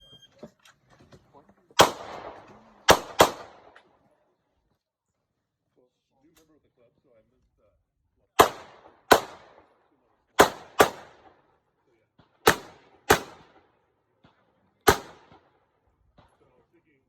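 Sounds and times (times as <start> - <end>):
pistol shots: 1.8 - 4.0, 8.4 - 11.4, 12.2 - 16.4.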